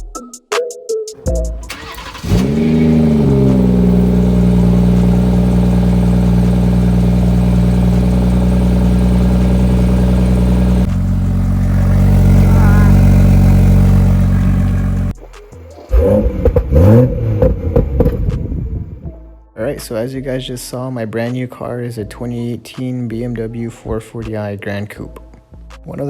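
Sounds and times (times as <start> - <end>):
car engine starting and idling: 1.2 - 15.2, 15.9 - 19.2.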